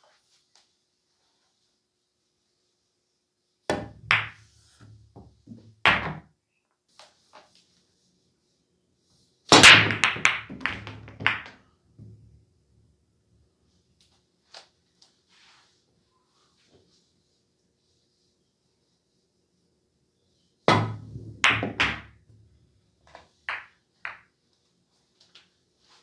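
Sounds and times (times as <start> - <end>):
pool balls clacking: 3.7 - 6.2, 9.5 - 11.6, 20.7 - 22.2
pool break crack and scatter: 9.5 - 11.5.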